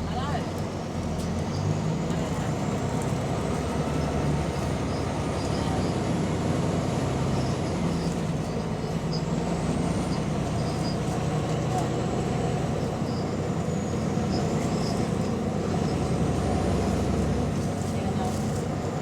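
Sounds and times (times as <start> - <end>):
bus engine rumble: 0.0 - 19.0.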